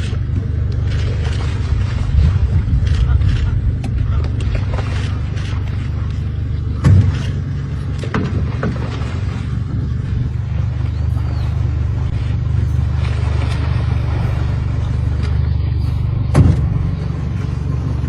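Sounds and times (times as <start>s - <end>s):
vehicle engine idling: 0.0s - 18.0s
loud thump: 6.8s - 7.3s, 16.2s - 17.0s.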